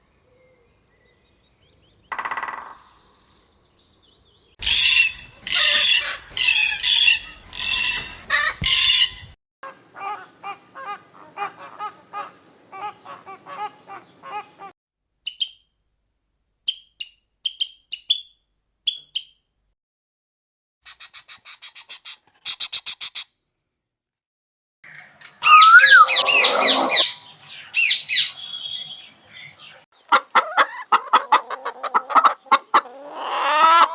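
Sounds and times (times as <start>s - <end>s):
birds calling and singing: 0.0s - 8.0s, 8.8s - 14.7s, 24.9s - 33.9s.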